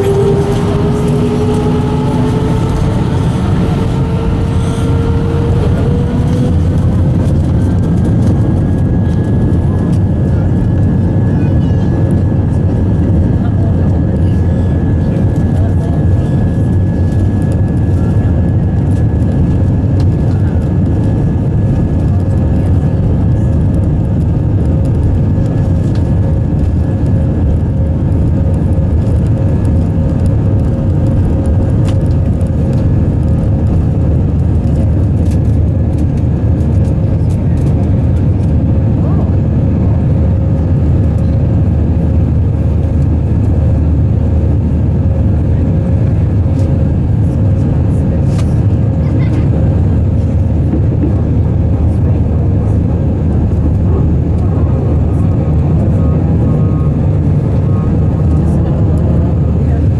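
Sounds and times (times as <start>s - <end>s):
faint high engine tone: 0.0s - 7.7s
mid-pitched engine tone: 0.0s - 9.3s
jet engine cabin rumble: 0.0s - 59.9s.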